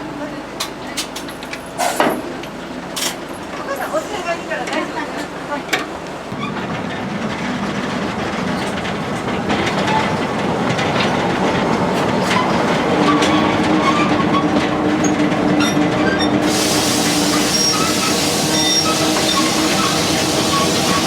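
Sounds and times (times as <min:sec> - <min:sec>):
train rumble: 0:00.0 - 0:21.0
train wheels clicking over rails: 0:05.8 - 0:21.0
hiss: 0:16.4 - 0:21.0
thin squealing tones: 0:17.3 - 0:21.0.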